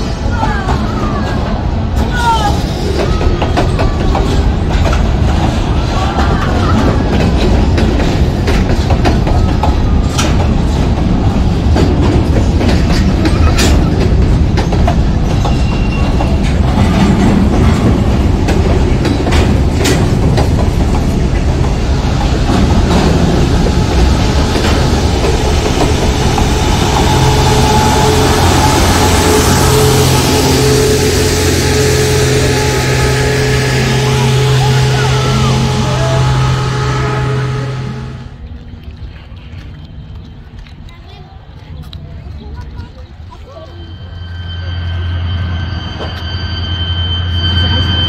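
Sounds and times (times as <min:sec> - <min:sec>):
rail cars rumbling: 0:00.0 - 0:48.0
engine hum: 0:16.6 - 0:43.4.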